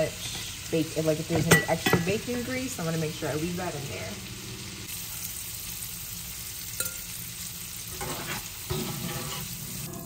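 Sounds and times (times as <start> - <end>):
chicken sizzling in grease: 0.0 - 10.0
spoon knocking and scraping pan: 1.3 - 2.2, 7.9 - 10.0.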